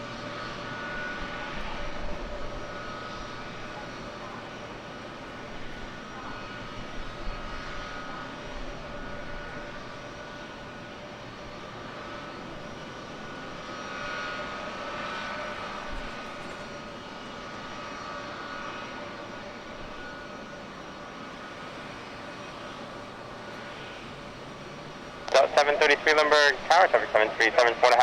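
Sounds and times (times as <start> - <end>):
jet engines whining: 11.4 - 28.0.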